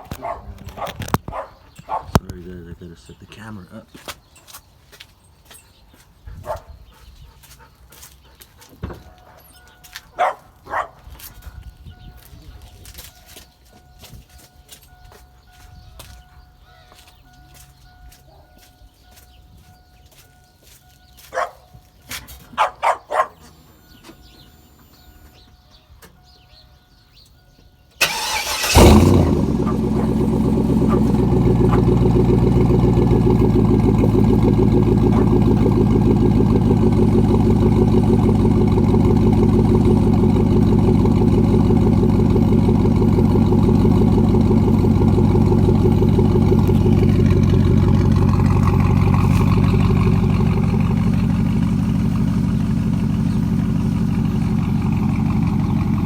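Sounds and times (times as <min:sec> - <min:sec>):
truck engine starting and idling: 0:27.9 - 0:56.0.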